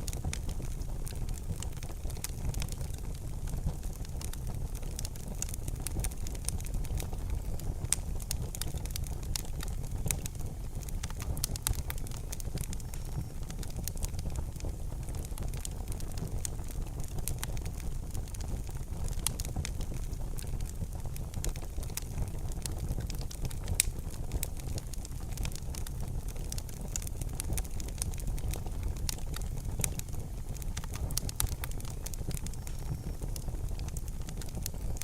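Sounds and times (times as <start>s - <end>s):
low fire rumble: 0.0s - 35.0s
wood fire crackling and popping: 0.0s - 35.0s.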